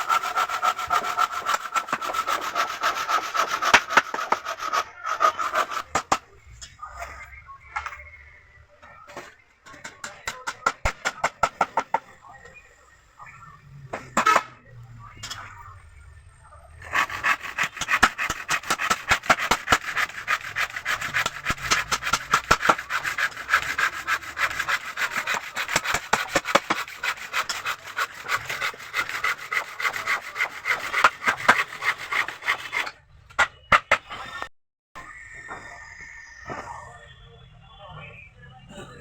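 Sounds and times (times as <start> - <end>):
hand scraping wood: 0.0 - 6.2, 16.9 - 32.9.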